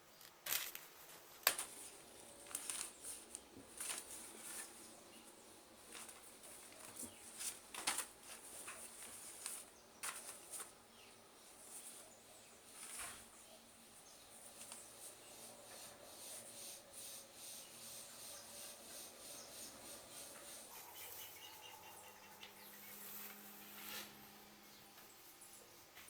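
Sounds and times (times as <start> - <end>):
faint steady hum: 0.0 - 26.0
packaging rustling and crinkling: 0.2 - 5.0, 5.8 - 10.8.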